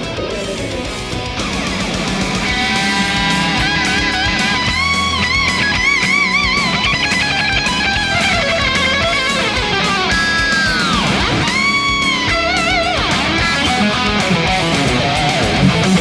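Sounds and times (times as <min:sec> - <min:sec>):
electric guitar solo: 0:00.0 - 0:16.0.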